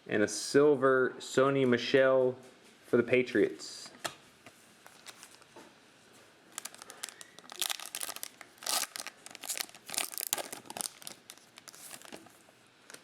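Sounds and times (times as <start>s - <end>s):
foil wrapper tearing and crinkling: 4.9s - 5.5s, 6.5s - 12.4s.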